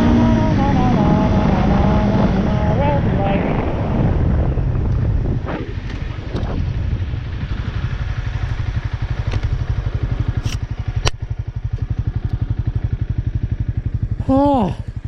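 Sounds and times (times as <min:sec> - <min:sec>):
wind noise: 0:00.0 - 0:12.3
motorcycle engine idling: 0:00.0 - 0:15.0.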